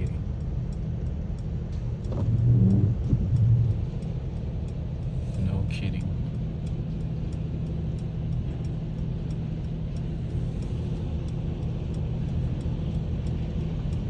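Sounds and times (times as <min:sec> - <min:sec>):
car rumble: 0:00.0 - 0:14.0.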